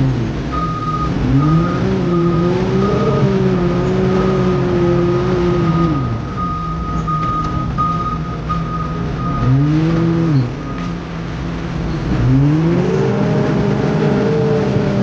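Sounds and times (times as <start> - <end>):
diesel engine revving: 0.0 - 15.0
reversing alarm beeping: 0.6 - 3.4, 4.2 - 9.7.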